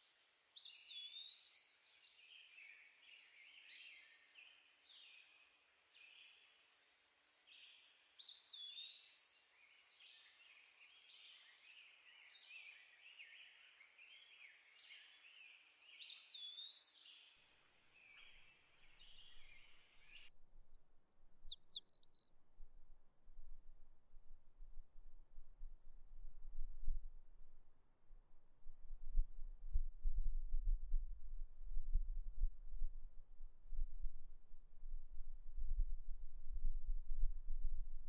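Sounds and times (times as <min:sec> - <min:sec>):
songbirds singing: 0:11.0 - 0:17.4, 0:18.0 - 0:22.3.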